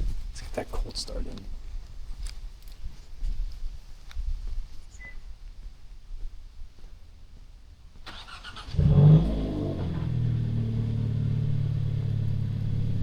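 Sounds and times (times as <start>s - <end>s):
car engine revving and idling: 8.4s - 13.0s.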